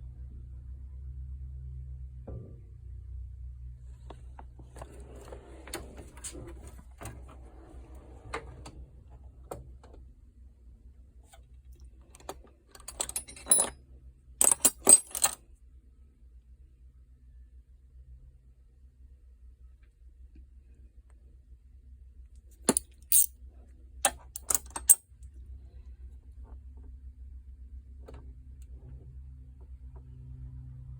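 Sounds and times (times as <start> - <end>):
metal hand tools clinking: 12.8 - 13.7, 14.4 - 15.4, 22.7 - 23.3, 24.4 - 25.0.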